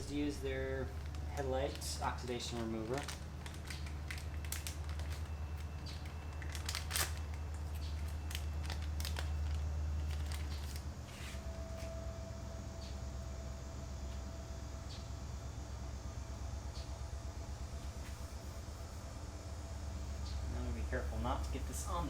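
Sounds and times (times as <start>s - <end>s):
low hum: 0.0s - 22.0s
wipe packet crinkling: 0.9s - 11.5s
faint steady tone: 11.4s - 22.0s.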